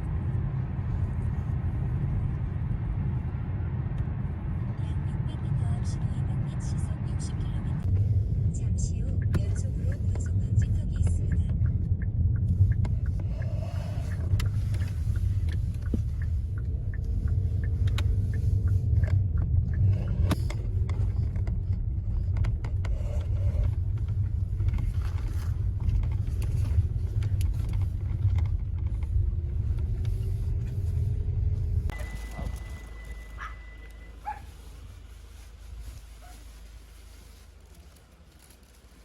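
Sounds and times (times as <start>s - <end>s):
car engine and tyre noise: 0.0s - 39.0s
faint clicks and rattles: 8.9s - 31.0s.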